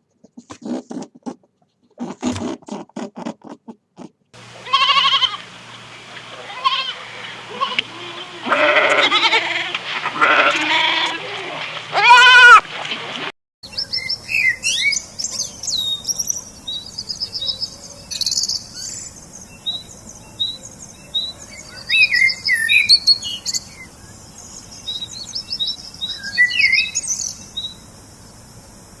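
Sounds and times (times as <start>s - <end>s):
songbirds chirping and trilling: 13.6s - 28.8s.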